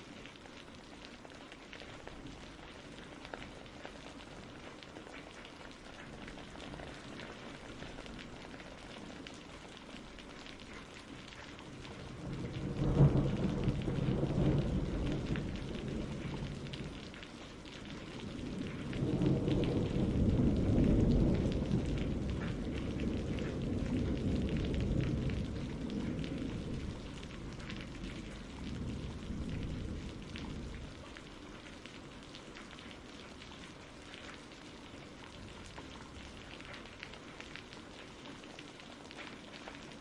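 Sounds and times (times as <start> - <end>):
steady rain: 0.0 - 40.0
thunder rumbling: 11.4 - 34.2.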